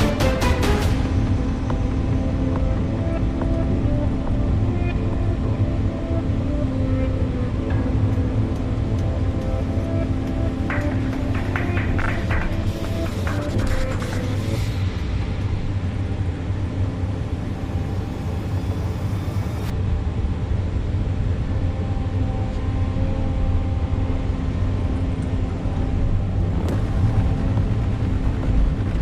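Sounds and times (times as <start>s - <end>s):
diesel excavator engine running: 22.9s - 29.0s.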